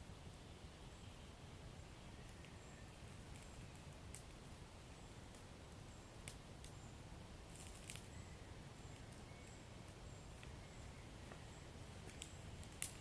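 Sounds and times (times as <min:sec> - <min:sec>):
wood fire crackling: 0:02.3 - 0:08.2, 0:11.9 - 0:13.0
fire popping and snapping: 0:03.3 - 0:04.5, 0:05.3 - 0:05.5, 0:06.2 - 0:06.8, 0:07.5 - 0:08.1, 0:12.0 - 0:13.0.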